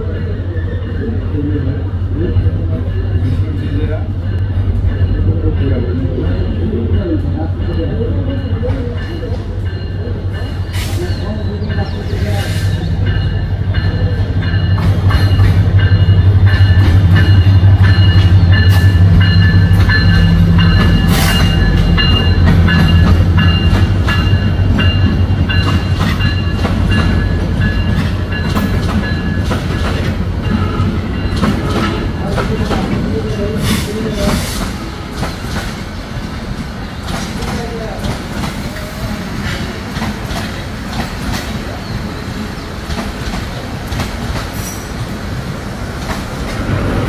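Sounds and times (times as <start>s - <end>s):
locomotive engine drone: 0.0s - 33.6s.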